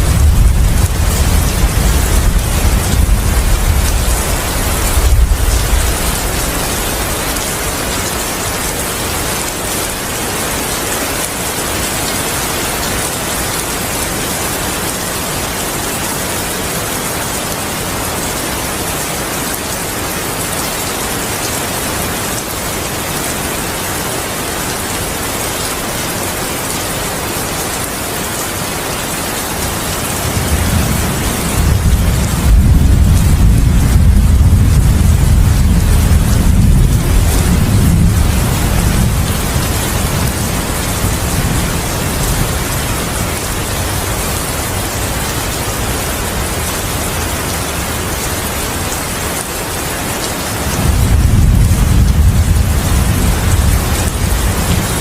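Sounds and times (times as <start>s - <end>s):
low thunder rumble: 0.0s - 7.4s, 30.2s - 42.7s, 50.7s - 55.0s
heavy rain: 0.0s - 55.0s.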